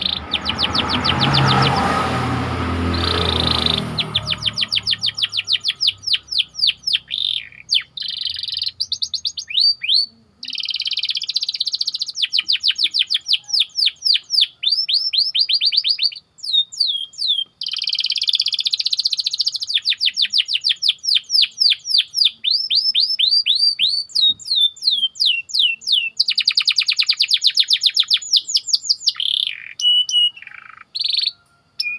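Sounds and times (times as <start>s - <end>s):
canary singing trills: 0.0s - 31.9s.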